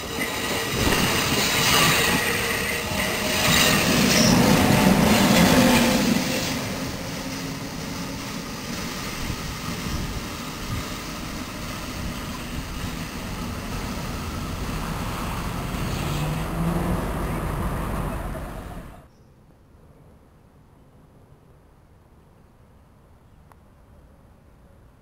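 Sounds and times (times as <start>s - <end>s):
electric locomotive passing: 0.0s - 19.1s.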